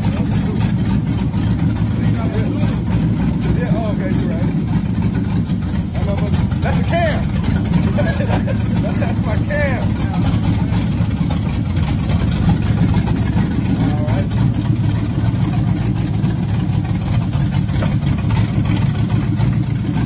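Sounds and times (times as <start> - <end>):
car engine running steadily: 0.0 - 20.0.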